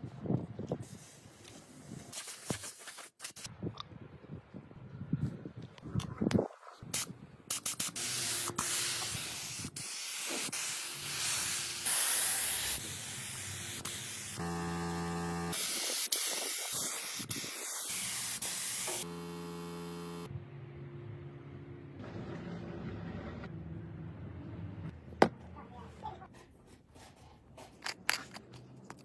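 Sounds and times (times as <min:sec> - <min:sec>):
compressed air hissing: 0:06.9 - 0:14.5, 0:15.4 - 0:20.3
motor hum: 0:14.4 - 0:15.7, 0:19.0 - 0:23.4.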